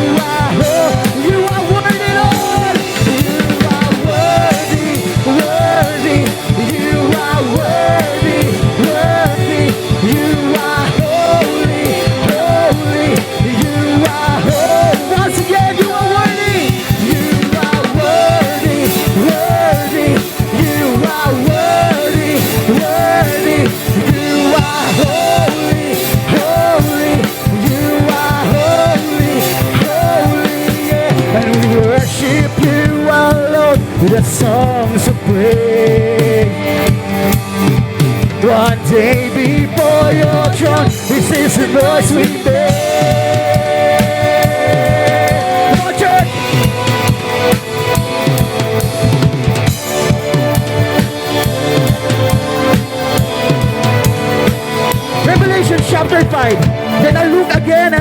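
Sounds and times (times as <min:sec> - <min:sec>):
drum kit: 0:00.0 - 0:58.0
upbeat worship band playing: 0:00.0 - 0:58.0
voices singing: 0:00.0 - 0:58.0.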